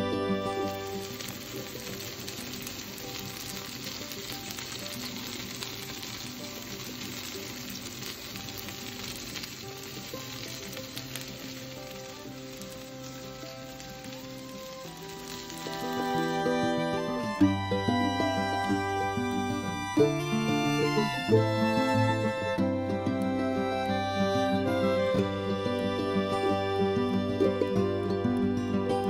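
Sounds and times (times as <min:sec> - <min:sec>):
fish sizzling in hot oil: 0:00.0 - 0:29.0.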